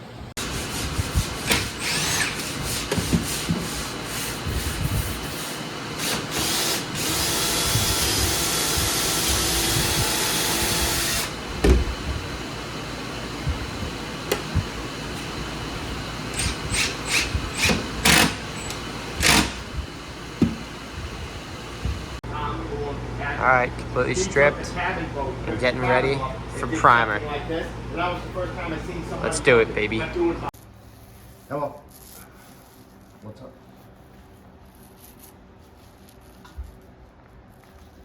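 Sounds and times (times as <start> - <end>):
power sander running: 3.9 - 22.2.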